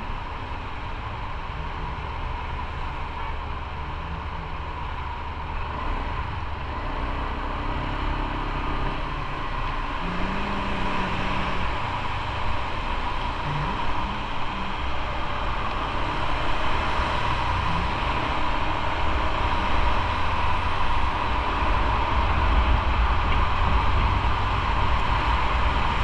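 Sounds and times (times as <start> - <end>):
motorcycle engine running: 0.0 - 26.0
road noise: 0.0 - 26.0
wind noise: 8.6 - 26.0.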